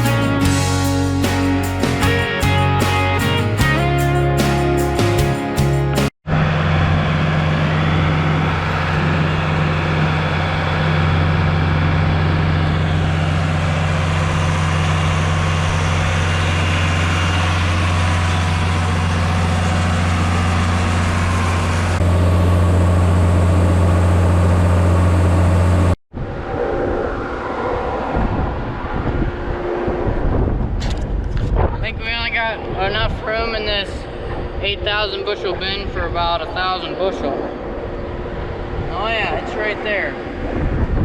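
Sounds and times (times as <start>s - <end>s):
heavy engine humming: 5.8s - 26.4s.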